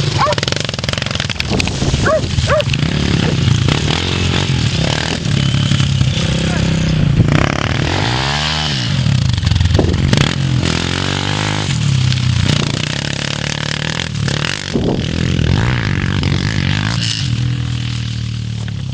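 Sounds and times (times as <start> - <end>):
dirt bike engine revving: 0.0 - 18.9.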